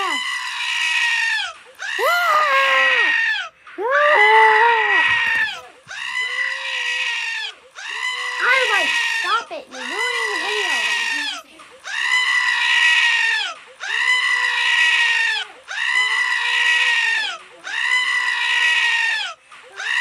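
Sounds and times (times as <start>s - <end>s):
long high-pitched cry: 0.0s - 20.0s.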